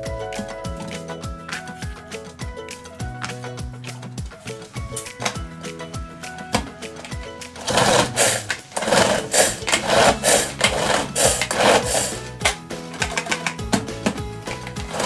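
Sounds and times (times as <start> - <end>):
background music: 0.0 - 15.0
repeated scraping strokes: 6.2 - 12.4.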